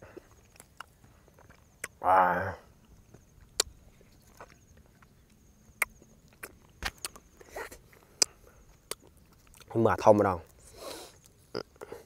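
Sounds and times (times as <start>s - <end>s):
mouth clicks and lip smacks: 3.4s - 4.6s, 5.8s - 9.7s.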